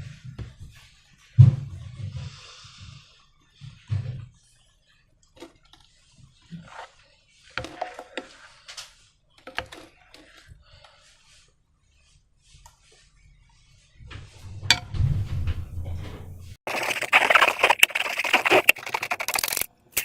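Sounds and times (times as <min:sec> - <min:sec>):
sticky slime squelches and crackles: 0:16.7 - 0:20.0.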